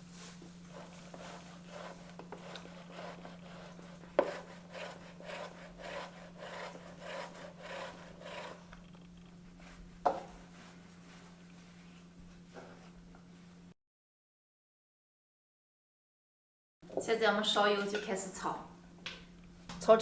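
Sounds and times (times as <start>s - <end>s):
fork mashing potatoes in a bowl: 0.7s - 8.9s.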